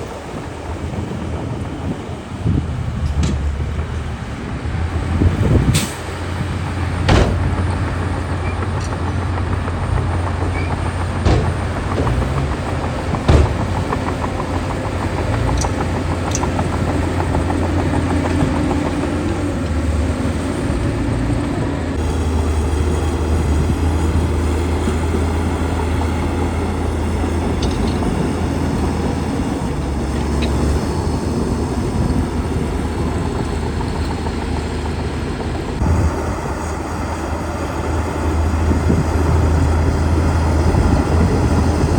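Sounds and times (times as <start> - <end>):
bulldozer engine drone: 0.0 - 41.9
sharp metal clanks: 10.4 - 14.8.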